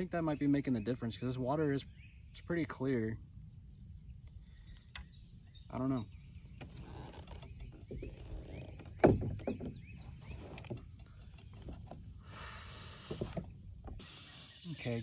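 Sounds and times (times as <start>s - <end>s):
brief hiss: 12.2s - 14.9s
high-pitched insect drone: 12.2s - 15.0s.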